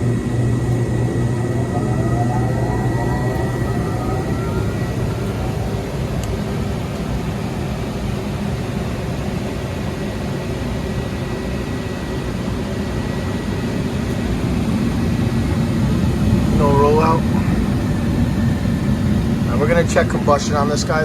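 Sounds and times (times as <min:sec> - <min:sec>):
faint high whine: 0:00.0 - 0:07.6
furnace burners and blower roaring: 0:00.0 - 0:21.0.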